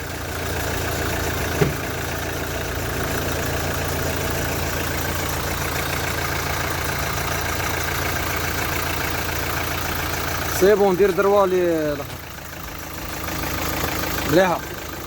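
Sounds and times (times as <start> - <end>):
diesel engine idling: 0.0 - 15.0
short knock: 1.6 - 1.9.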